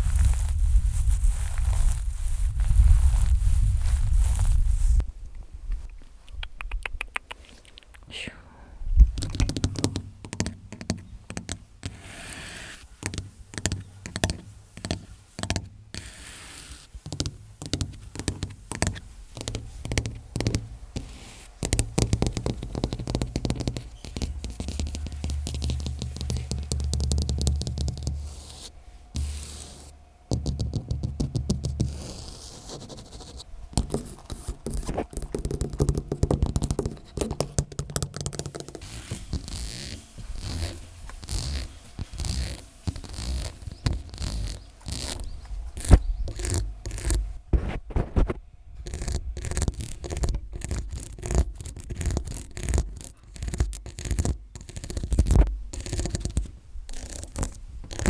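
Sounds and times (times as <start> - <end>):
low handling rumble: 0.0 - 5.7, 18.6 - 37.5
fingernails scratching microphone: 11.4 - 15.2, 15.9 - 58.0.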